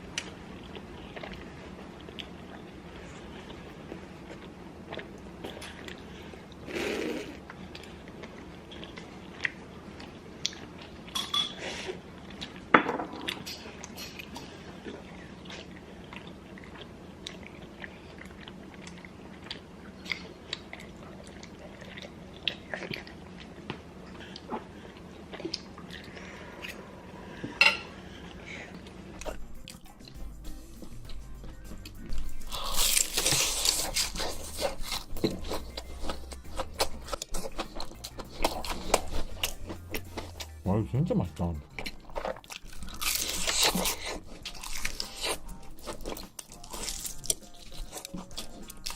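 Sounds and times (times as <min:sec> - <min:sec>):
chewing: 0:00.1 - 0:11.2, 0:13.3 - 0:40.6, 0:41.6 - 0:48.9
utensils clinking against a bowl: 0:11.1 - 0:11.6.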